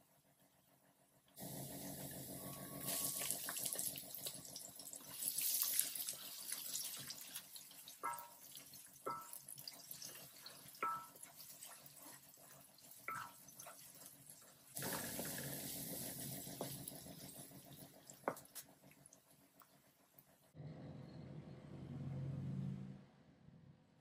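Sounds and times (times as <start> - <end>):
onion sizzling in oil: 1.4 - 18.4
wooden spatula knocking pan: 8.0 - 9.5, 10.7 - 11.3, 13.1 - 13.4.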